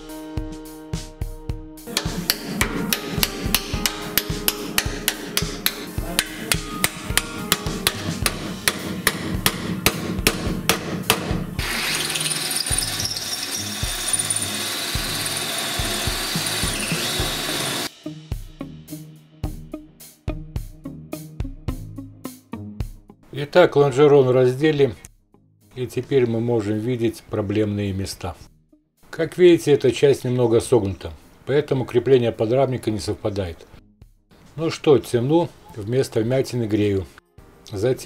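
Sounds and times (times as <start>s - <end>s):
hammer blows on chisel: 1.9s - 11.8s
power drill running: 11.6s - 17.9s.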